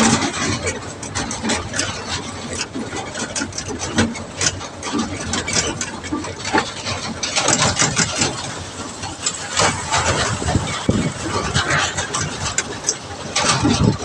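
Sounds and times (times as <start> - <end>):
sharp knocks and rattles: 0.0 - 14.0
vehicle engine running: 0.0 - 14.0.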